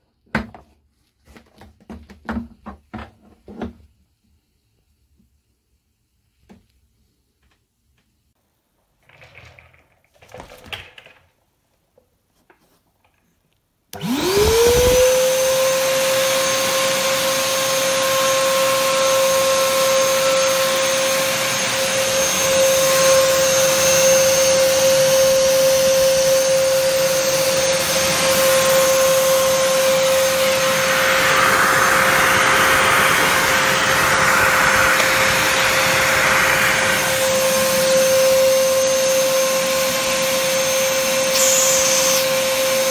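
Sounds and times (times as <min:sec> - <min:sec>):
vacuum cleaner motor whining: 0:13.9 - 0:42.9
hissing rush of air: 0:27.0 - 0:38.8, 0:41.2 - 0:42.3.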